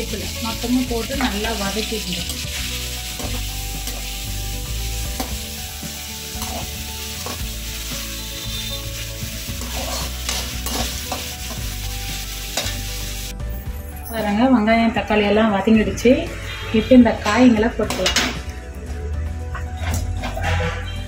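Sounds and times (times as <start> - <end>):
vegetables sizzling in hot oil: 0.0 - 13.4
metal spoon scraping pan: 9.5 - 11.7.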